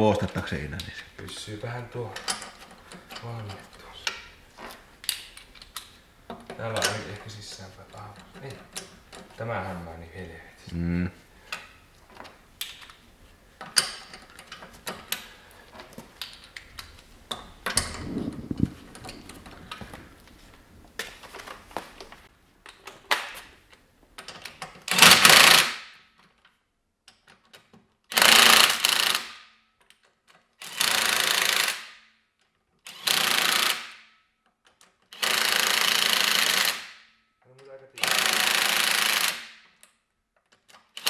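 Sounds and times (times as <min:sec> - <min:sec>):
clicks and rattles of parts: 0:02.0 - 0:09.4, 0:13.6 - 0:37.0, 0:38.0 - 0:41.0
impact wrench bursts: 0:24.9 - 0:25.8, 0:28.1 - 0:29.4, 0:30.6 - 0:31.9, 0:32.9 - 0:34.0, 0:35.2 - 0:37.0, 0:38.0 - 0:39.6.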